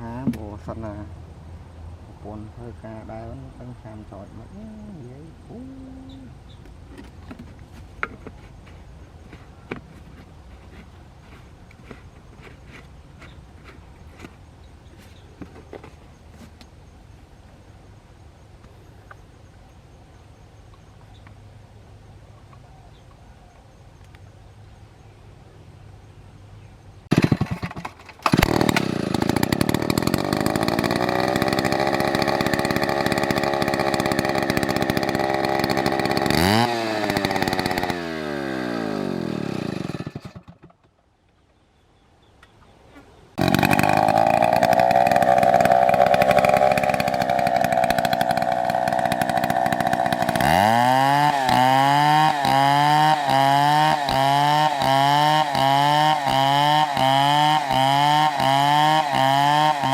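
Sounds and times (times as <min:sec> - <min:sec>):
chainsaw engine running: 0:27.1 - 0:40.7, 0:43.4 - 0:59.9.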